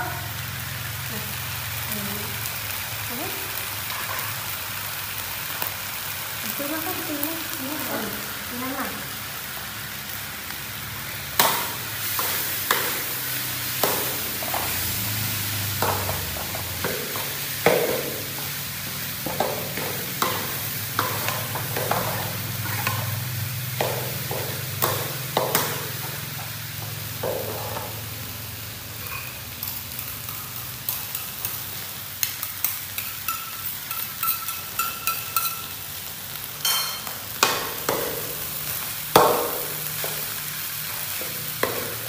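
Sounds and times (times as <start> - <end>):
vegetables sizzling in a wok: 0.0 - 42.0
metal spatula scraping a wok: 29.0 - 31.7.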